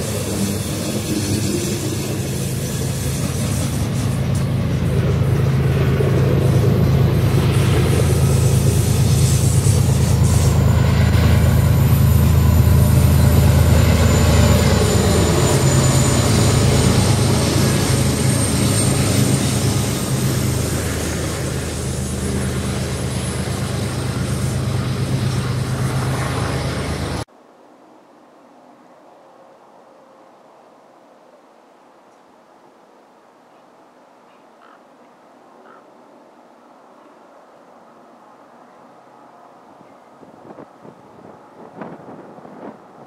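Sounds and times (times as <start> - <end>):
diesel locomotive engine drone: 0.0 - 27.3, 36.6 - 43.0
wheel on rail noise: 0.0 - 27.3, 37.7 - 43.0.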